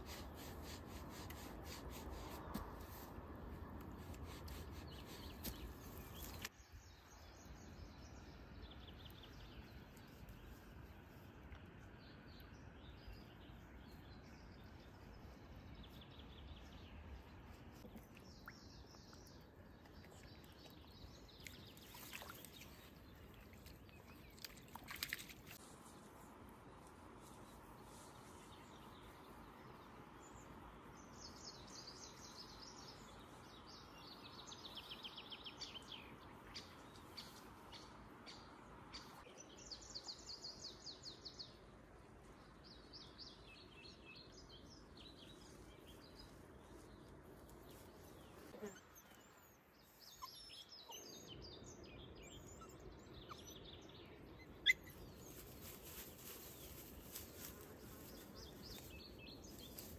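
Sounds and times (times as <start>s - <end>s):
songbirds singing trilled phrases: 47.8s - 55.5s.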